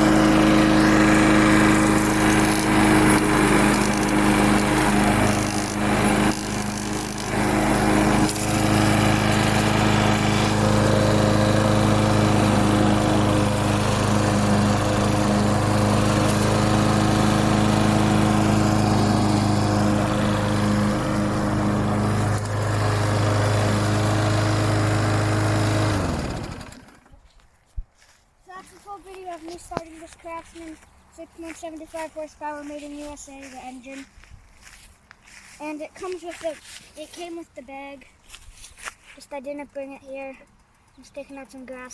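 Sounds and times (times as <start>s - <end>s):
lawnmower engine running: 0.0s - 27.2s.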